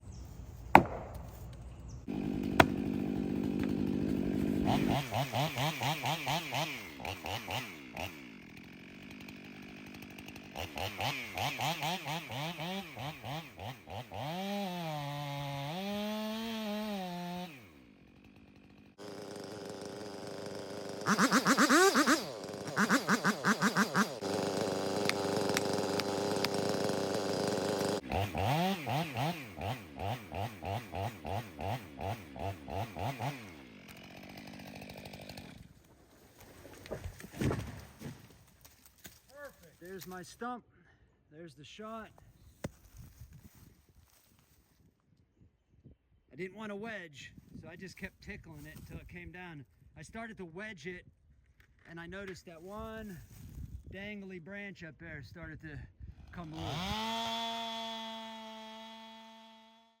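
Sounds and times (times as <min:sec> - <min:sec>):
chainsaw cutting and revving: 0:02.1 - 0:38.5, 0:56.2 - 1:00.0.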